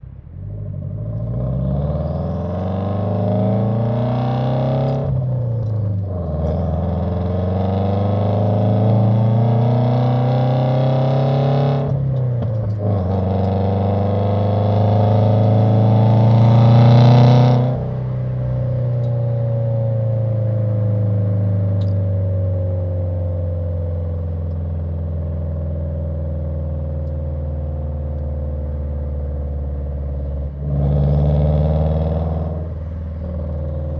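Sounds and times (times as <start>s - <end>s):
car engine accelerating through gears: 0.0s - 33.9s.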